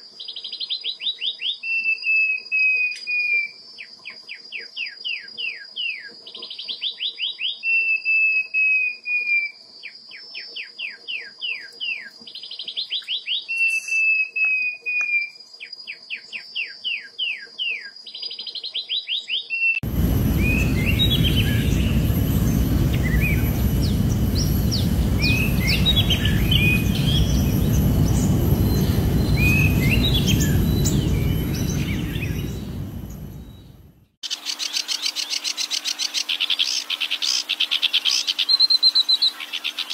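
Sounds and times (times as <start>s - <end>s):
songbird singing: 0.0s - 39.9s
bird chirps: 0.2s - 39.9s
high insect drone: 19.8s - 33.7s
loud low rushing noise: 19.8s - 34.1s.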